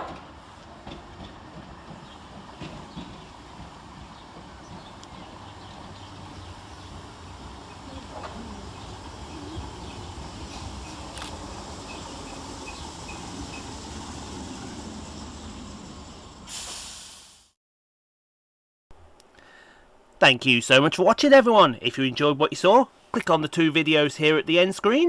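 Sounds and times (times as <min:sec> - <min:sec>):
train rumbling: 0:00.0 - 0:17.2
short loud hiss: 0:16.5 - 0:17.6.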